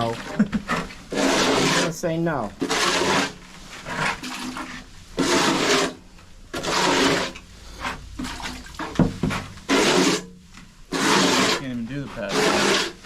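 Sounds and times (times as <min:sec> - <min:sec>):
liquid splashing and sloshing: 0:02.6 - 0:06.0, 0:06.6 - 0:10.2.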